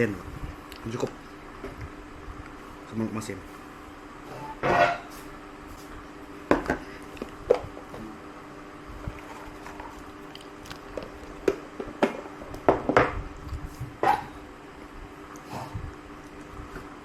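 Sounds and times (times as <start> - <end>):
faint steady hum: 0.0 - 17.0
dishes clinking: 4.4 - 5.1
chewing: 9.1 - 11.4.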